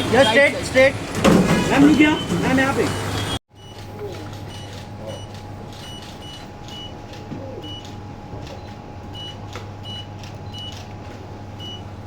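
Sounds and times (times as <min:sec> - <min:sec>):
camera focus beeps: 0:03.2 - 0:07.0, 0:07.6 - 0:07.9, 0:08.5 - 0:10.8.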